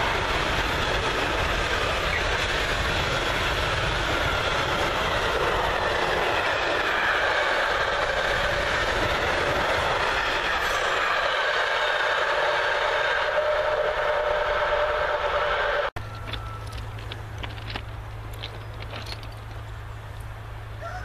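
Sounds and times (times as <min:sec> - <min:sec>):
freight train rumbling past: 0:00.0 - 0:21.0.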